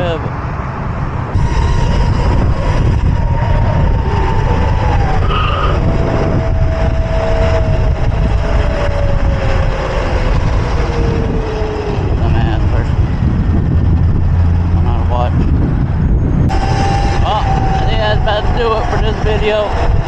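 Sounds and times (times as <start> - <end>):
wind buffeting microphone: 0.0 - 20.0
electric motor whine: 1.4 - 13.3, 16.5 - 20.0.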